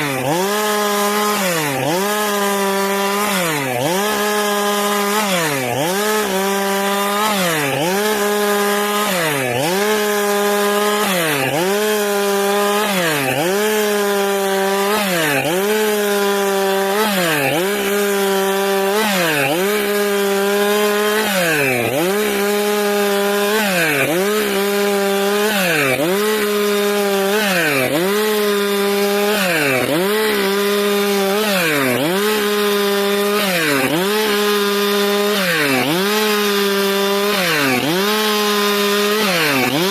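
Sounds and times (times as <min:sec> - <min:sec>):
chainsaw sawing wood: 0:00.0 - 0:39.9.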